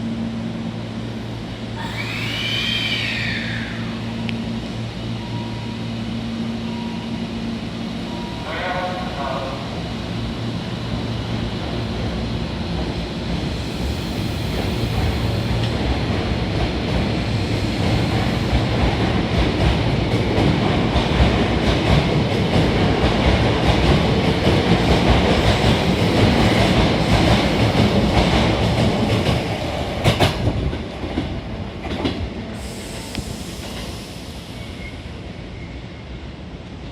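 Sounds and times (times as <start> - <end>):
rail-joint clacks: 14.6 - 32.3.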